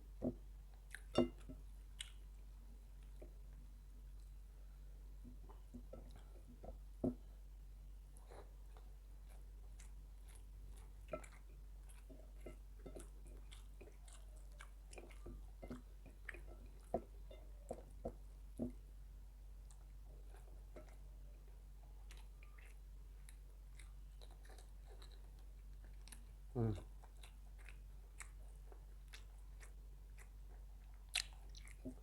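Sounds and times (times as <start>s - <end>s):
person chewing food: 0.2s - 32.0s.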